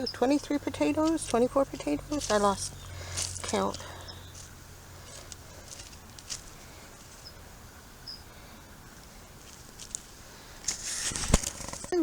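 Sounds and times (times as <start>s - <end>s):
light rustles: 9.4s - 12.0s.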